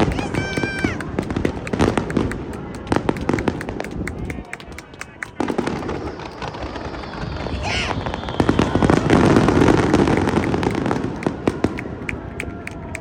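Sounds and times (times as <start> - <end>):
fireworks booming and crackling: 0.0 - 13.0
firework whistle: 5.4 - 13.0.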